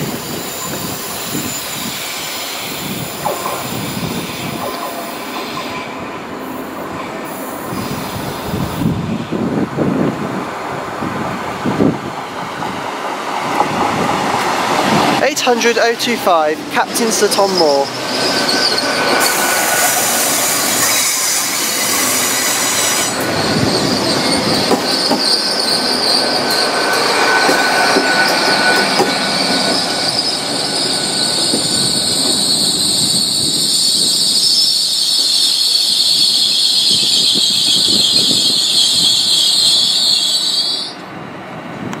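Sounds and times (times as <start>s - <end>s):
train wheels squealing: 0.0s - 9.3s, 17.0s - 41.1s.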